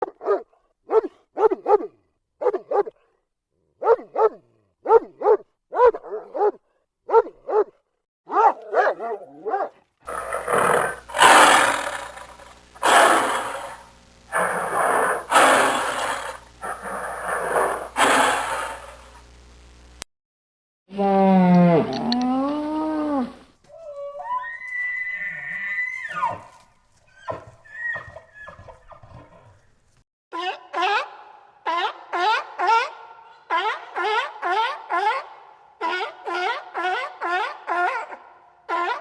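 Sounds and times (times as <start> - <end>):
dog barking: 0.0 - 3.0, 3.8 - 9.8, 31.7 - 39.0
harsh animal call: 10.1 - 19.0, 23.7 - 29.6.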